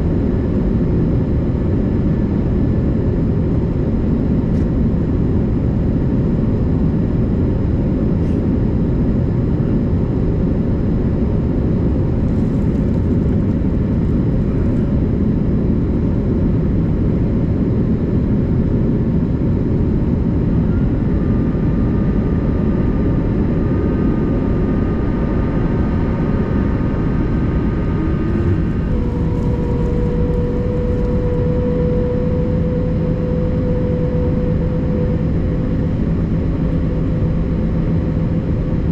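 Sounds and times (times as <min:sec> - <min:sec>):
jet engines running: 0:00.0 - 0:38.9
steady hum: 0:00.0 - 0:38.9
thin whine tones: 0:11.8 - 0:38.9.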